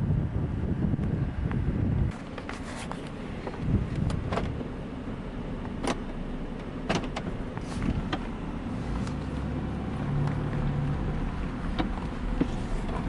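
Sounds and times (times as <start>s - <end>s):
car low rumble: 0.0s - 13.0s
sharp clicks and knocks: 5.6s - 8.3s, 11.7s - 13.0s.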